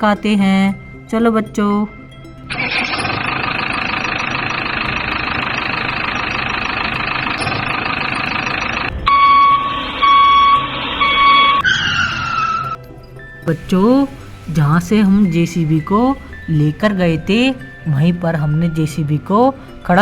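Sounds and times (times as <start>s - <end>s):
reversing beeps: 2.5s - 12.8s
toy electronic engine sound: 2.5s - 12.8s.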